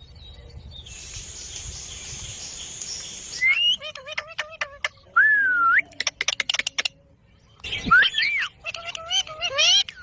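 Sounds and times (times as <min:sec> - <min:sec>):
steady high hiss: 0:00.8 - 0:03.8
parakeet whistle and chirps: 0:00.9 - 0:03.9.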